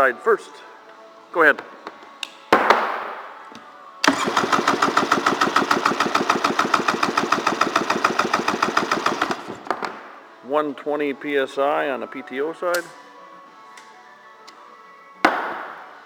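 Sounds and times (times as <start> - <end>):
engine cranking with starter: 4.0 - 9.7.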